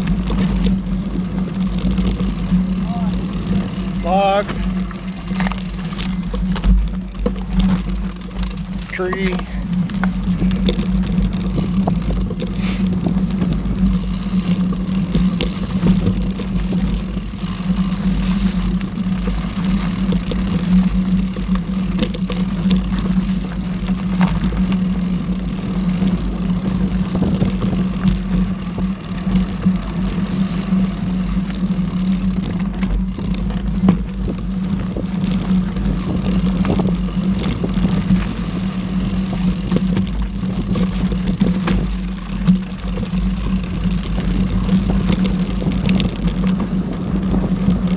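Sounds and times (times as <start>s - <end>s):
bike frame knocks and rattles: 0.0s - 47.9s
bike tyres rumbling on dirt: 0.0s - 47.9s
wind on microphone: 32.5s - 47.9s.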